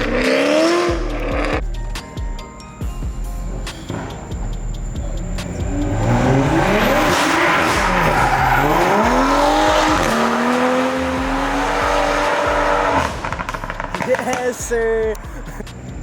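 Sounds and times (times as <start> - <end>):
car engine revving: 0.0 - 2.0, 3.2 - 16.0
tyres squealing: 3.4 - 14.9.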